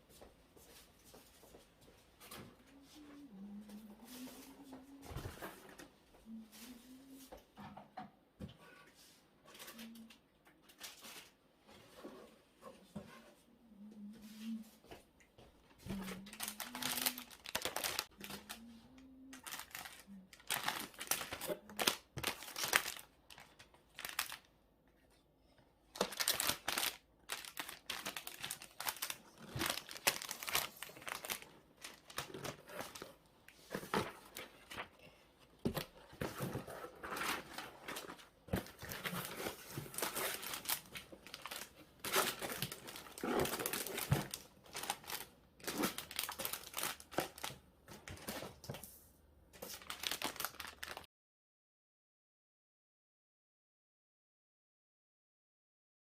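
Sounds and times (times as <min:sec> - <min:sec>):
plastic packaging crinkling: 0:15.9 - 0:24.5, 0:25.9 - 0:34.9, 0:35.7 - 0:48.8, 0:49.6 - 0:51.1.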